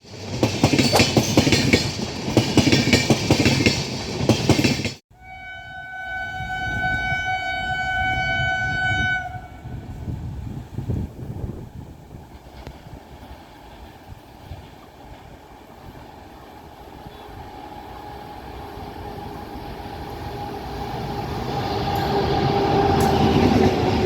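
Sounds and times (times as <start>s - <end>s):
train wheels clacking over rail joints: 0.0s - 5.0s, 19.8s - 24.0s
low rumble of train: 0.0s - 24.0s
locomotive horn long note: 5.1s - 10.3s, 17.0s - 24.0s.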